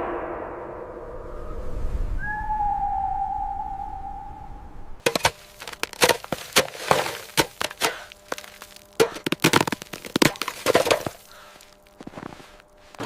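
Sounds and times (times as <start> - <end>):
sharp cracks and snaps: 5.1 - 12.0.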